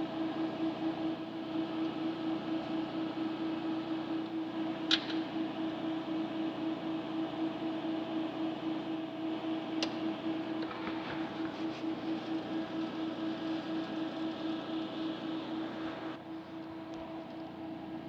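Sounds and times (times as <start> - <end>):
machine hum with pulsing tone: 0.0 - 18.0.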